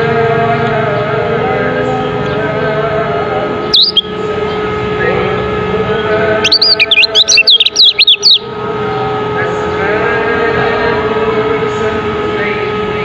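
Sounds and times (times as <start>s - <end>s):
steady hum: 0.0s - 13.0s
bird twittering chirps: 3.7s - 4.6s, 6.4s - 8.5s
bird short high call: 3.8s - 4.1s, 6.4s - 8.5s.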